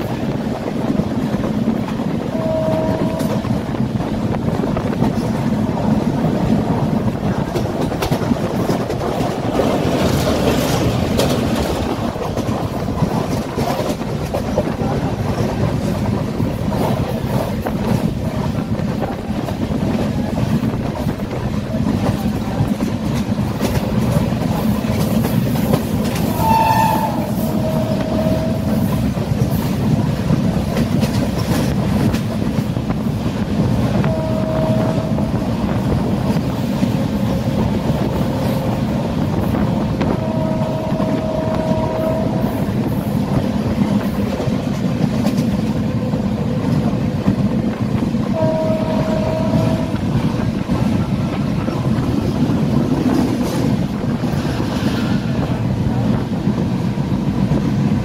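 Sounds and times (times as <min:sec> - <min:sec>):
train wheels rumbling on rails: 0:00.0 - 0:58.0
train horn tones: 0:02.2 - 0:03.8, 0:26.1 - 0:29.2, 0:33.9 - 0:36.4, 0:40.0 - 0:43.1, 0:48.2 - 0:50.4.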